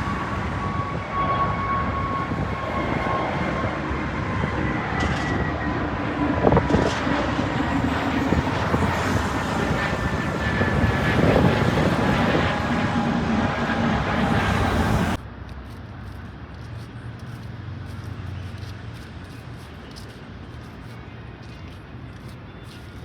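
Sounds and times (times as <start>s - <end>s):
faint high whine: 0.0s - 15.2s
jet engines roaring: 0.0s - 15.2s.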